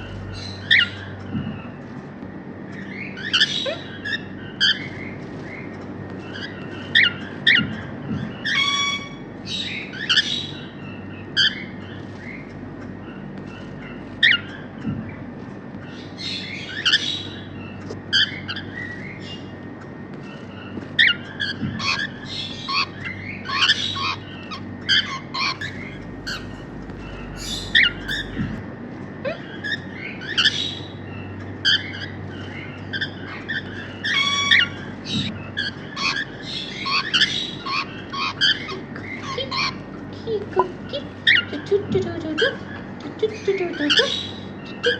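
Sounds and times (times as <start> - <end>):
cockatiels chirping and squawking: 25.6 - 28.6.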